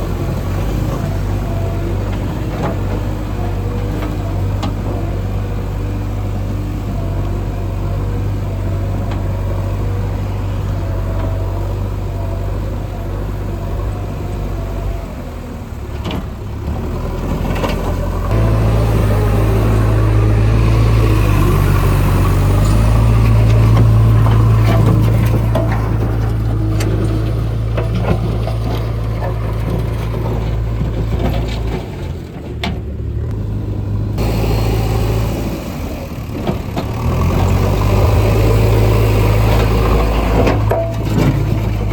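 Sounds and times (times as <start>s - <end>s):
heavy diesel engines under load: 0.0s - 41.9s.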